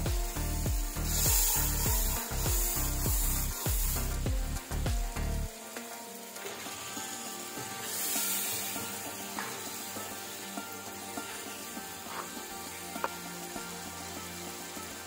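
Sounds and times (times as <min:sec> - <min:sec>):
chicken sizzling: 0:00.0 - 0:15.0
masala sizzling in a wok: 0:00.0 - 0:15.0.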